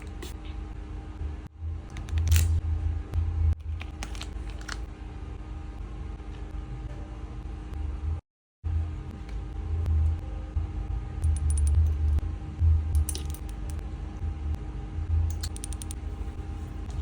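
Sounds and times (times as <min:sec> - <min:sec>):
low rumble: 0:07.7 - 0:17.0.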